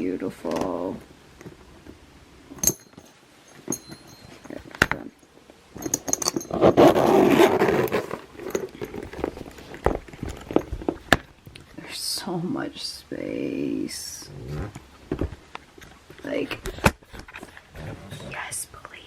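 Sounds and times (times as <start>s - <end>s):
bag rustling and shuffling: 5.7s - 11.1s.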